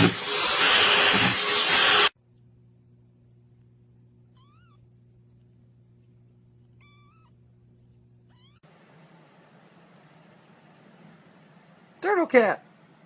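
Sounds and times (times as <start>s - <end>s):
low steady hum: 2.2s - 13.0s
faint cat meows: 8.3s - 8.6s.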